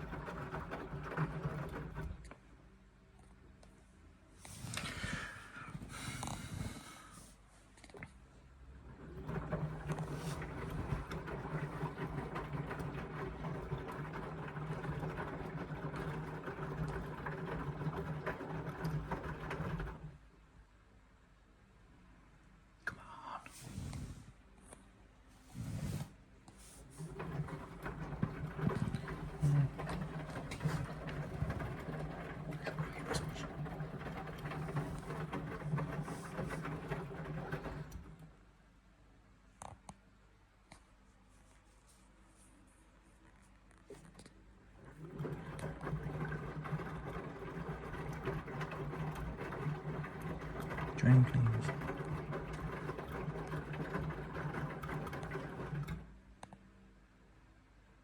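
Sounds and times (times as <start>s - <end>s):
washing machine motor humming: 0.0s - 2.3s, 8.6s - 20.3s, 26.7s - 38.5s, 44.6s - 56.3s
wet laundry clattering and sloshing: 0.0s - 2.3s, 8.7s - 20.2s, 26.7s - 38.4s, 44.7s - 56.2s.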